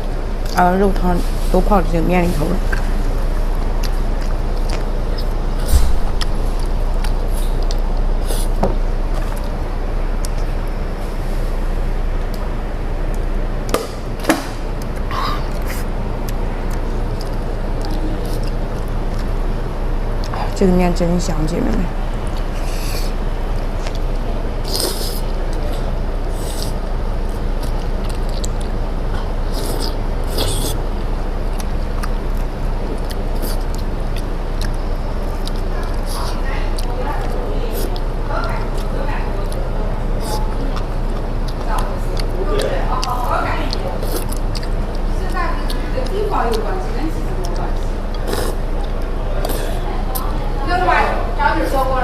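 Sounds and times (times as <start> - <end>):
low background hum: 0.0 - 52.0
noodles slurped and chewed: 14.8 - 19.5, 22.3 - 50.3.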